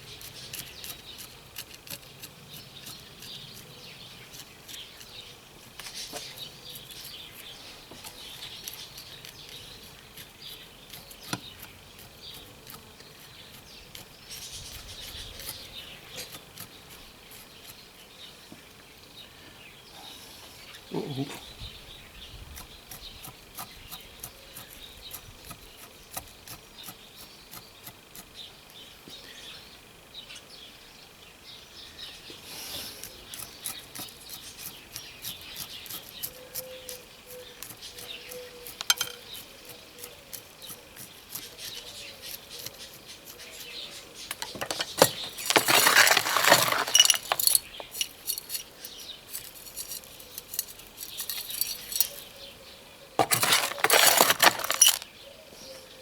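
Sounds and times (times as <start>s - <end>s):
small hard objects clicking: 38.6s - 39.4s, 44.3s - 52.2s, 53.2s - 55.1s
rattling scrape: 44.3s - 52.2s, 53.2s - 55.1s.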